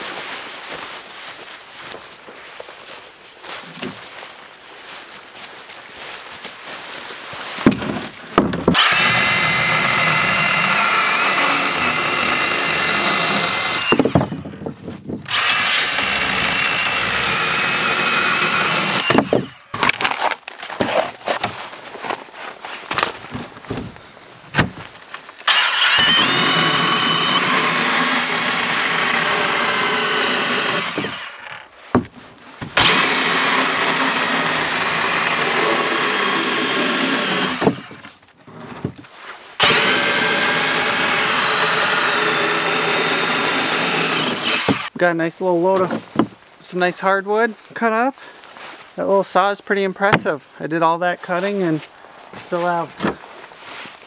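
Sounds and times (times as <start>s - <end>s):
wood knocking and clattering: 7.6s - 8.8s, 22.9s - 24.9s, 31.9s - 32.9s, 45.8s - 46.4s
cordless saw cutting wood: 8.6s - 14.6s, 15.2s - 20.1s, 25.4s - 31.7s, 32.8s - 38.1s, 39.6s - 45.0s.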